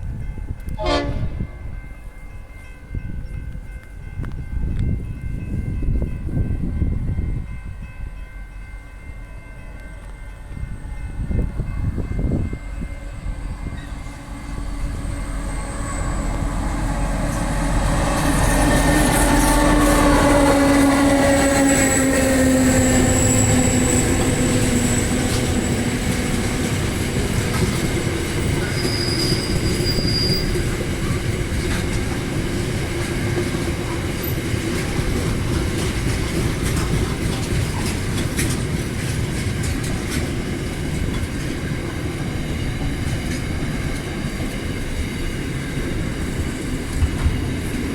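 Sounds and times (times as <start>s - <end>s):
diesel locomotive engine passing: 0.0s - 47.9s
train wheels rolling: 9.8s - 47.9s
high wheel squeal: 13.6s - 26.0s, 28.4s - 31.2s.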